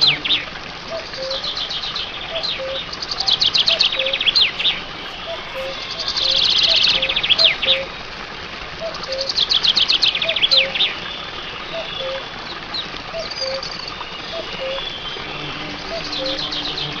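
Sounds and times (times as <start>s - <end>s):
bird fast high chirps: 9.0s - 17.0s
bird low two-note call: 13.2s - 17.0s.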